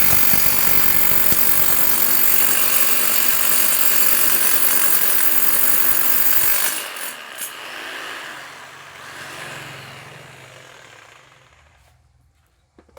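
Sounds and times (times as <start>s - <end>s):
motor winding down: 0.0s - 2.4s
rotary hammer running: 0.0s - 7.5s.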